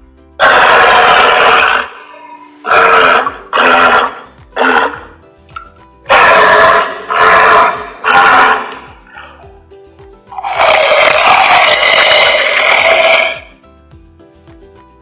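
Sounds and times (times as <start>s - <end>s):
faint background music: 0.0s - 15.0s
walrus bellowing: 0.4s - 5.2s, 6.1s - 9.5s, 10.4s - 13.5s.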